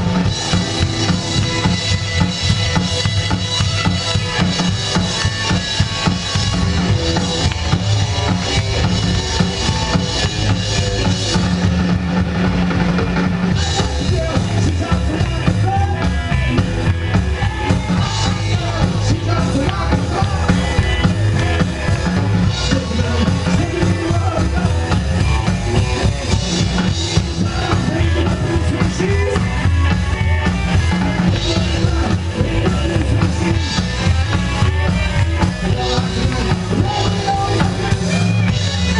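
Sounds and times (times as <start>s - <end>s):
drum kit and bass drum: 0.0s - 38.9s
rockabilly band playing live: 0.0s - 38.9s.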